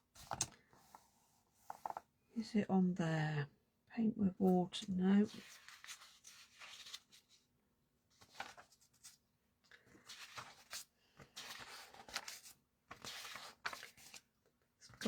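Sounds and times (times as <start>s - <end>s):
paper pages rustling: 0.1s - 2.1s, 5.3s - 7.5s, 8.1s - 14.3s.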